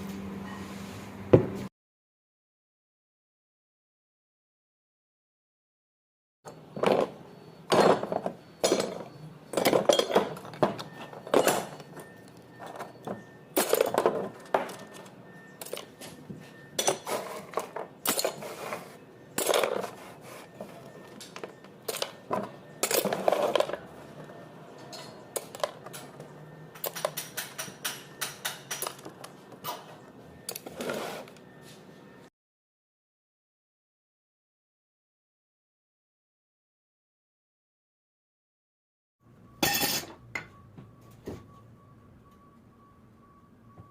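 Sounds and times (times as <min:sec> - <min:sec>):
metal tools knocking and clinking: 0:06.5 - 0:18.6, 0:19.3 - 0:20.0, 0:20.7 - 0:30.7, 0:39.6 - 0:40.6.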